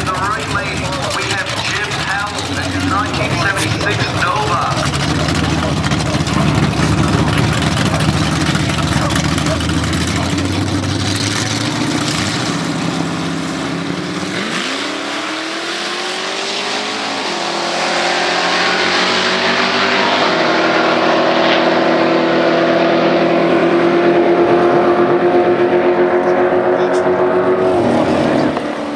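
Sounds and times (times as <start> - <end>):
engines revving through gears: 0.0 - 28.9.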